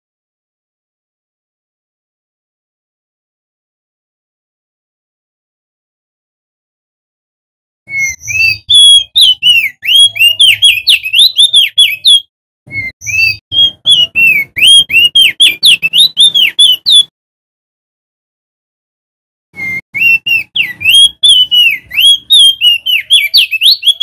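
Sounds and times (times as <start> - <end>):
bird singing whistled notes: 7.9 - 17.1, 19.6 - 24.0.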